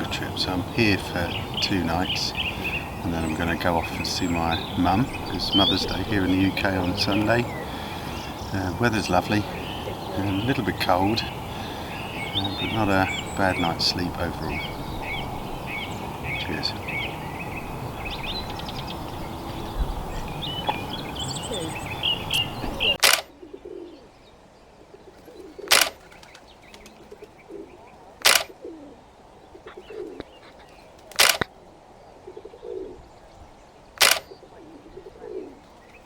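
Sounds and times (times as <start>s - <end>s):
pigeon cooing: 0.0s - 24.2s, 24.8s - 33.3s, 33.9s - 36.0s
small birds chirping: 0.0s - 36.0s
sharp clicks: 23.0s - 23.3s, 25.7s - 26.4s, 28.2s - 28.6s, 31.1s - 31.6s, 34.0s - 34.4s.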